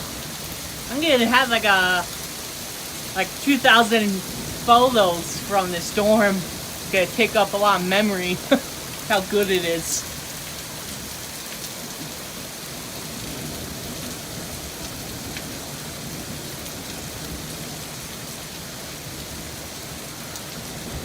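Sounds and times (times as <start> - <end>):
steady rain hiss: 0.0 - 21.0
rain drop ticks: 0.9 - 10.9.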